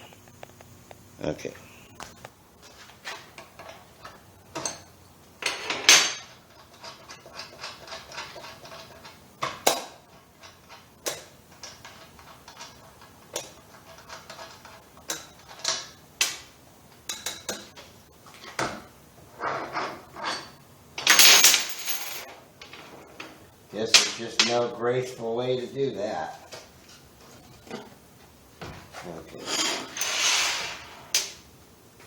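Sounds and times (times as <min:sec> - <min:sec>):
tools and metal parts clanking: 0:03.1 - 0:16.0, 0:19.7 - 0:22.9.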